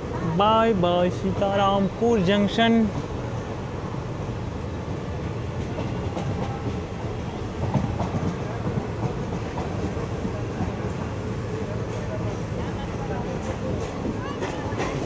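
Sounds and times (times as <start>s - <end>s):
train coach rumbling on rails: 0.0s - 15.0s
wheels clicking over rail joints: 13.3s - 15.0s.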